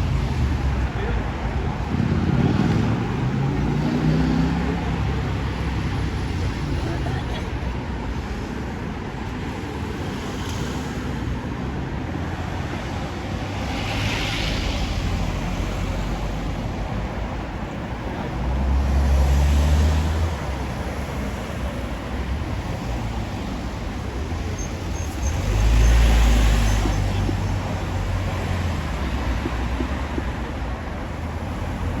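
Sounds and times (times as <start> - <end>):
road traffic noise: 0.0 - 32.0.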